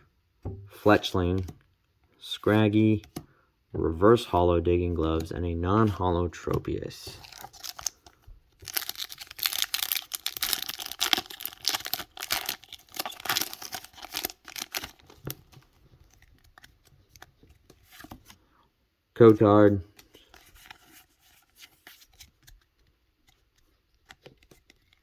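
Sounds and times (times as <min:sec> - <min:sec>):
foil wrapper crinkling: 0:07.2 - 0:17.3.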